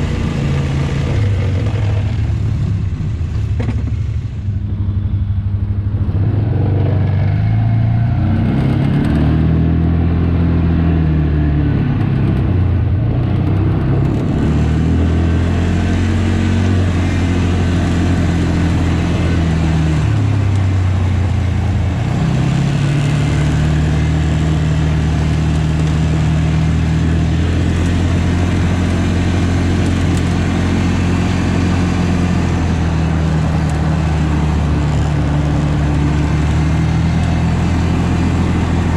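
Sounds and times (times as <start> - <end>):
tractor diesel engine running: 0.0 - 7.0, 16.5 - 38.9.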